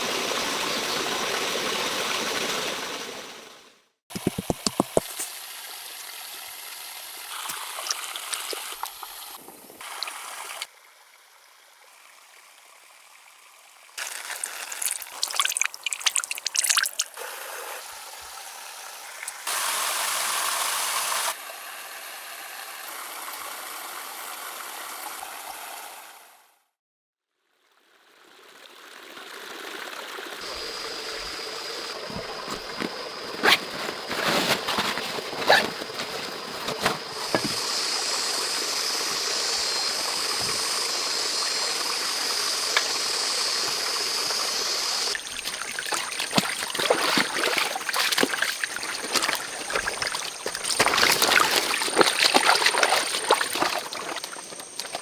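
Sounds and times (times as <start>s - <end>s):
water trickling: 4.1s - 10.7s, 14.0s - 17.2s, 30.4s - 55.0s
sharp splashes or knocks: 14.0s - 17.2s, 45.1s - 55.0s.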